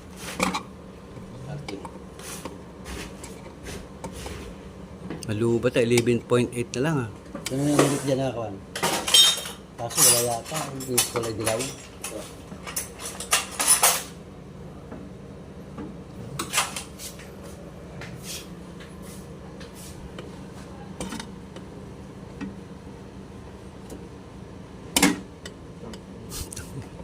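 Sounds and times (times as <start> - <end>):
metal tools clinking: 8.8 - 14.1.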